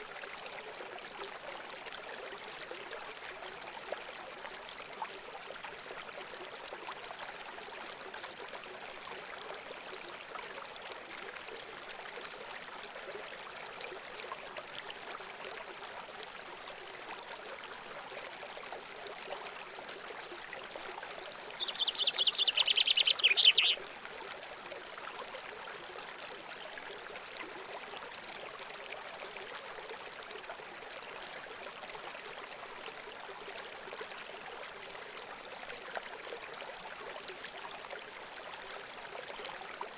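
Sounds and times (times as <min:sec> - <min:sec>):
trickling stream: 0:00.0 - 0:39.9
songbird trill: 0:21.3 - 0:23.8.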